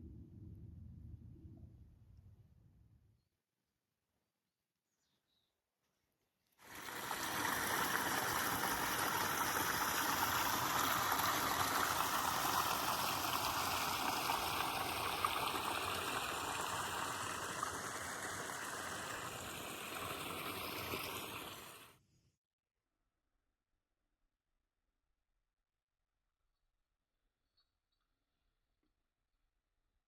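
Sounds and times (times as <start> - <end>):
running water rushing: 6.6 - 21.9.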